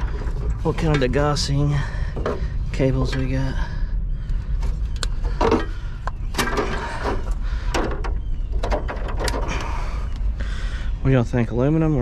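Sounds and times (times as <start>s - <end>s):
steady low rumble: 0.0s - 12.0s
sharp clicks and knocks: 4.3s - 9.7s.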